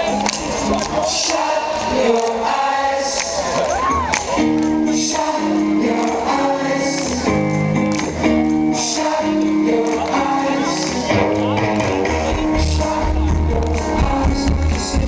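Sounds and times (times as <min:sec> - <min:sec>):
person singing: 0:00.0 - 0:07.4, 0:08.6 - 0:15.0
rock band playing live: 0:03.4 - 0:15.0.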